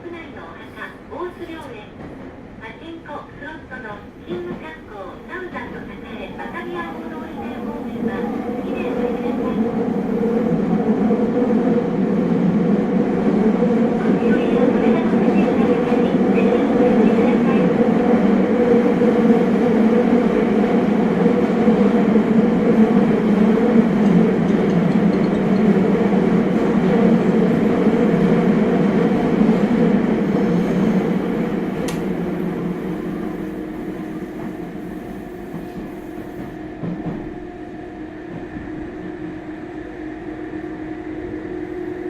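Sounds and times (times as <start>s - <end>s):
train running in tunnel: 0.0s - 42.0s
sharp tick: 31.8s - 32.0s.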